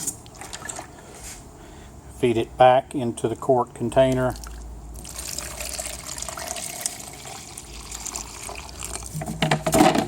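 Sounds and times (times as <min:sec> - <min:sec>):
water trickling into container: 0:04.2 - 0:09.1
container knock: 0:09.1 - 0:10.0.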